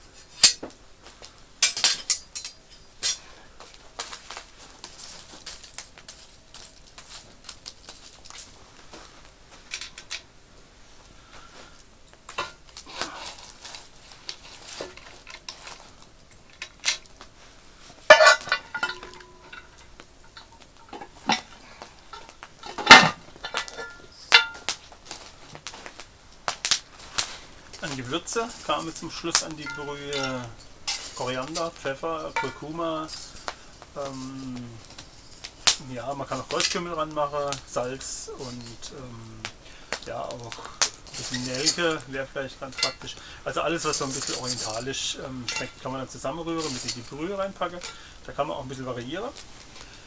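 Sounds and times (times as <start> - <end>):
metal cookware clinking: 1.6 - 3.3, 12.3 - 17.2, 18.0 - 24.8, 27.2 - 49.0
loud metal clanks: 18.1 - 24.8, 27.8 - 33.5, 40.5 - 48.2.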